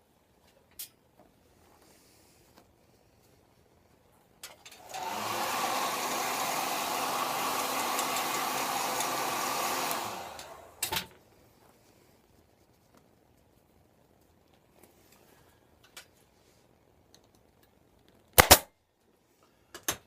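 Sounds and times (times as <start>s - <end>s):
hot-air blower running: 4.7s - 11.0s.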